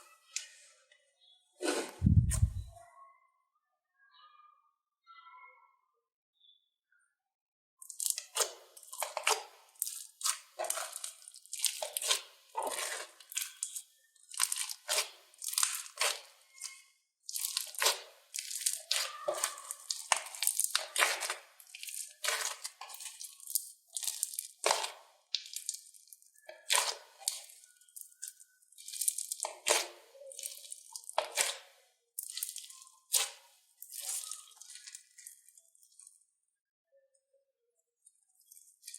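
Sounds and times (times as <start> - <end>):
hands squishing crackling slime: 7.8 - 36.2, 38.2 - 38.9.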